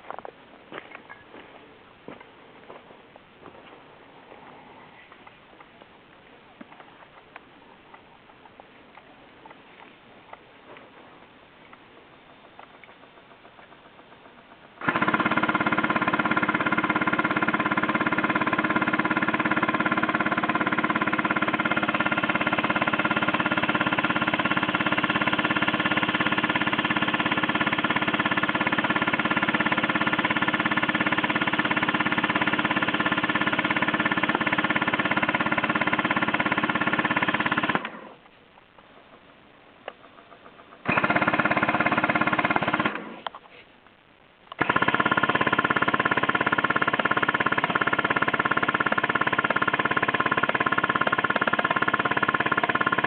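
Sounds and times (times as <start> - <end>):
airsoft minigun firing: 12.5 - 38.2, 40.1 - 43.3, 44.5 - 53.0.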